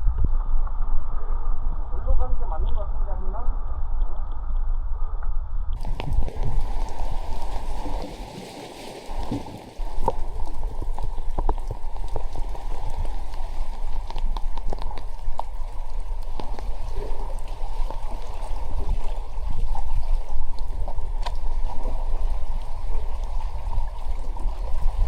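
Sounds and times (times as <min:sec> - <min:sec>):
low rumble: 0:00.0 - 0:08.2
small clicks and splashes: 0:05.8 - 0:25.0
water rushing and gurgling: 0:05.8 - 0:25.0.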